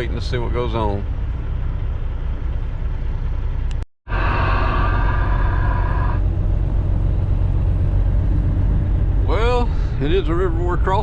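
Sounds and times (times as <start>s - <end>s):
truck engine and road rumble: 0.0s - 11.0s
high whine: 4.1s - 6.6s.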